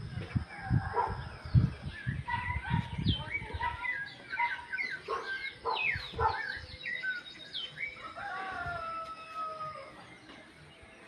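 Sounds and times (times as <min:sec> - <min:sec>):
birds singing: 0:00.0 - 0:11.0.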